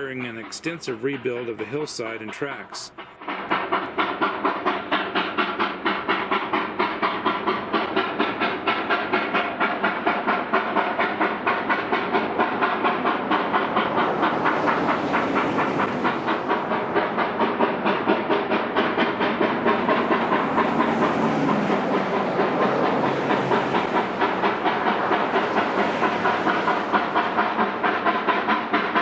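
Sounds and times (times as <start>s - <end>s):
steam hissing: 0.0s - 29.0s
steam locomotive exhaust chuffing: 0.0s - 29.0s.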